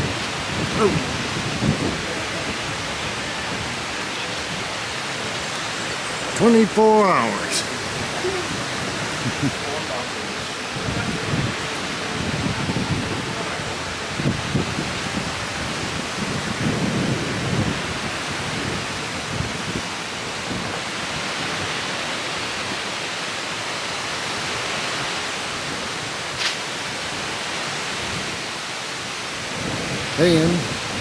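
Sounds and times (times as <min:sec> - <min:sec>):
surf rushing: 0:00.0 - 0:22.8
wind: 0:00.0 - 0:31.0.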